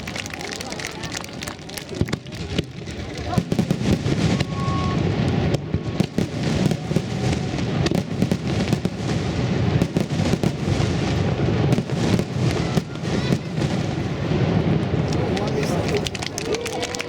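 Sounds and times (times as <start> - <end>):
fireworks bursting and crackling: 0.0 - 17.0.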